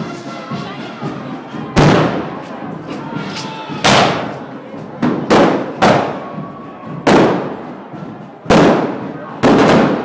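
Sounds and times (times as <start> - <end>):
crowd noise: 0.0 - 10.0
firework bangs: 1.8 - 2.3, 3.8 - 4.4, 5.0 - 6.3, 7.0 - 7.7, 8.4 - 10.0.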